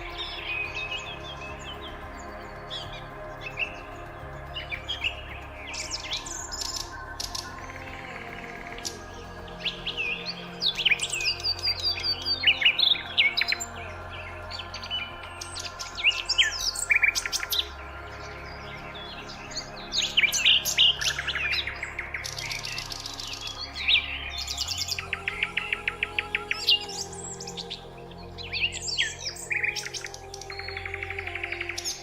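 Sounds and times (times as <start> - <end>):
birds chirping and singing: 0.0 - 32.0
soft background music drone: 0.0 - 32.0.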